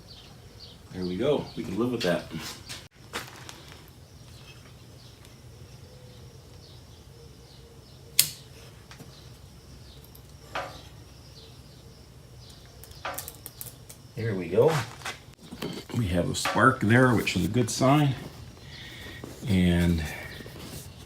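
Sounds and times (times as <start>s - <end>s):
sharp metallic clicks: 8.2s - 8.5s.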